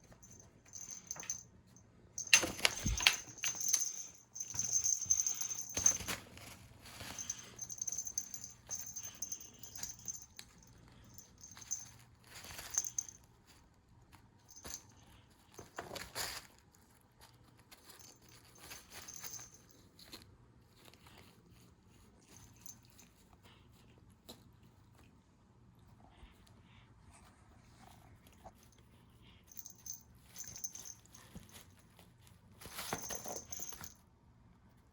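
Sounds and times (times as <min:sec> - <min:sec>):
faint high jingle: 0:00.0 - 0:13.3, 0:14.4 - 0:15.7, 0:17.8 - 0:19.9, 0:28.6 - 0:32.0, 0:32.7 - 0:34.0
cat toy rustles and taps: 0:02.2 - 0:13.2, 0:32.6 - 0:34.0.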